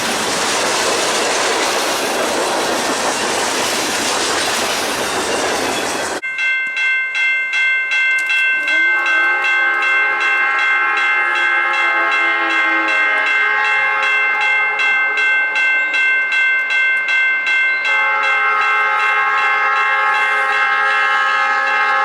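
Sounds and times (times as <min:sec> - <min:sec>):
freight train rolling past: 0:00.0 - 0:06.3
locomotive bell ringing: 0:00.0 - 0:22.0
locomotive horn: 0:08.6 - 0:15.9, 0:17.9 - 0:22.0.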